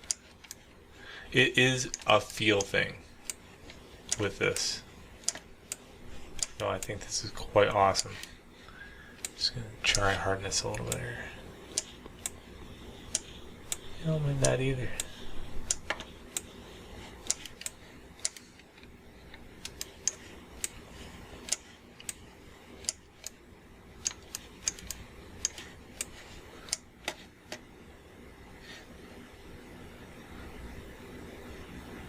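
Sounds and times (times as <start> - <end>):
faint steady hum: 0.0 - 32.0
mouse and keyboard clicking: 13.0 - 16.6, 17.2 - 22.2, 24.0 - 27.6.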